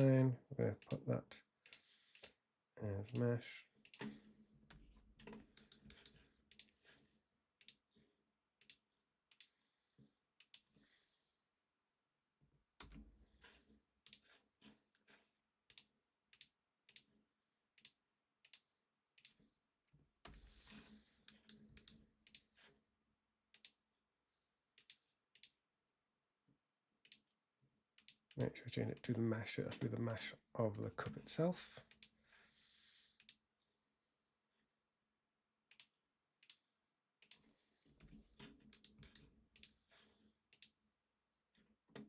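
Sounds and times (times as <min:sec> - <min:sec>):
mouse and keyboard clicks: 0:03.1 - 0:06.8, 0:21.2 - 0:22.5, 0:38.0 - 0:39.8.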